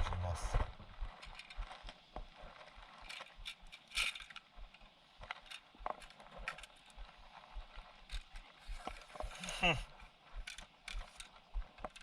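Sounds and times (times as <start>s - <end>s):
fishing tackle clicking and rattling: 1.2s - 2.0s, 2.9s - 7.0s, 8.0s - 9.4s, 10.4s - 12.0s.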